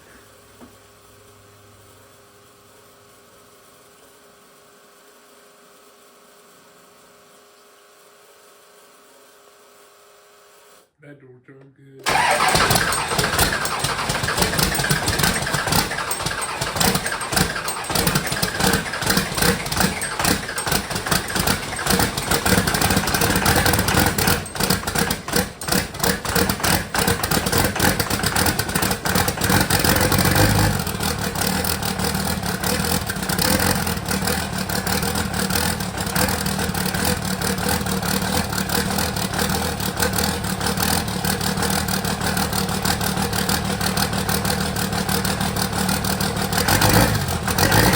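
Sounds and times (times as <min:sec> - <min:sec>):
diesel engine idling roughly: 0:12.1 - 0:47.9.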